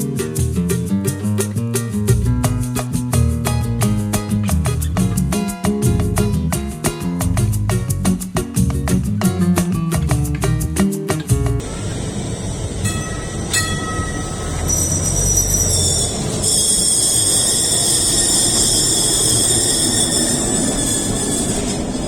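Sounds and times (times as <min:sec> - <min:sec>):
rail vehicle rumbling: 0:11.6 - 0:22.0
wheels squealing: 0:11.6 - 0:22.0.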